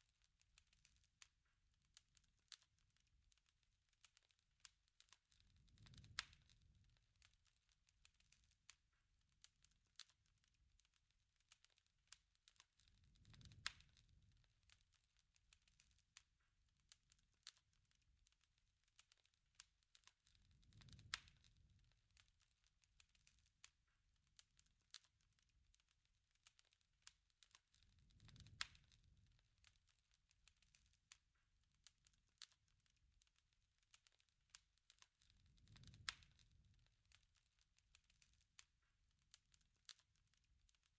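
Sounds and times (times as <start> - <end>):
campfire crackling: 0.0 - 40.9
rush of flame: 13.0 - 14.3, 20.4 - 21.8, 27.8 - 29.2, 35.4 - 36.7.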